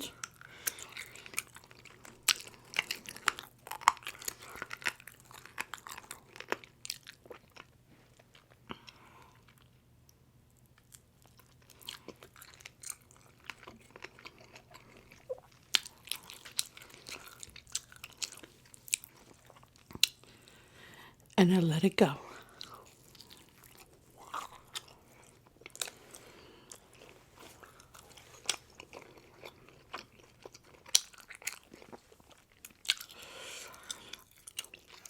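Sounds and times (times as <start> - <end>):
person chewing pizza: 0.0 - 21.4, 22.3 - 35.0.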